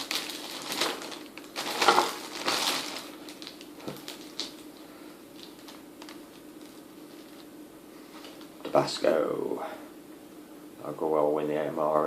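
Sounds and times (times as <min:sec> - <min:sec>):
packaging rustling: 0:00.0 - 0:07.5
faint steady hum: 0:00.0 - 0:12.0.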